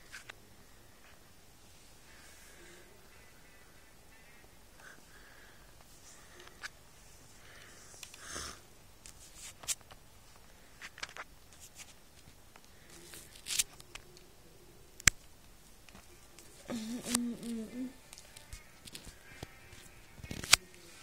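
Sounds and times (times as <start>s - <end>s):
soft clicks and rustles: 9.0s - 14.4s, 15.0s - 21.0s.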